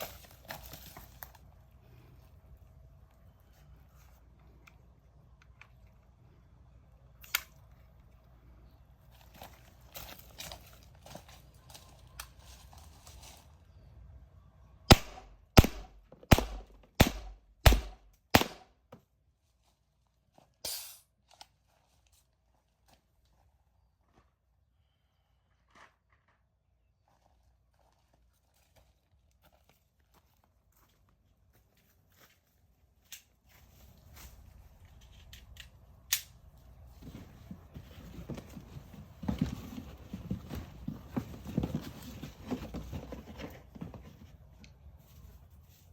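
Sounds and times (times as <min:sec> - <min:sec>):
paintball launcher shots: 0:14.9 - 0:18.7.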